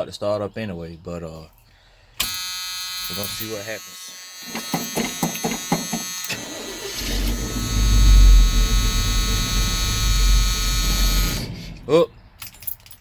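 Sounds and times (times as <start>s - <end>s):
starter cranking engine: 6.2s - 11.9s
pickup engine running unevenly: 6.4s - 11.9s.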